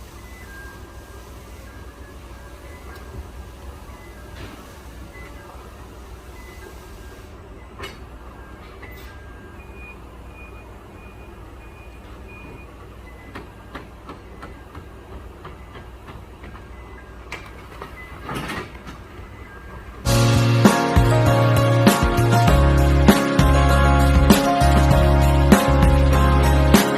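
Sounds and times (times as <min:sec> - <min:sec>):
reversing alarm beeping: 0:00.0 - 0:05.7, 0:06.3 - 0:13.4
forklift engine running: 0:19.4 - 0:26.9.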